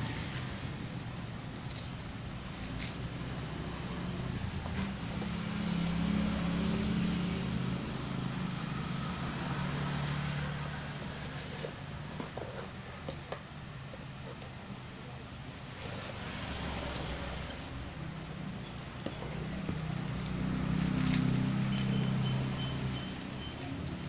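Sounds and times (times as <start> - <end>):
motor vehicle passing: 0.0 - 12.7, 15.7 - 24.0.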